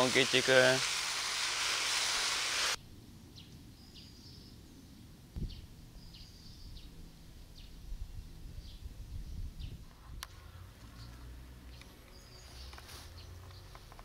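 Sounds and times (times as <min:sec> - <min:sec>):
faint bird chirps: 0:03.4 - 0:07.9.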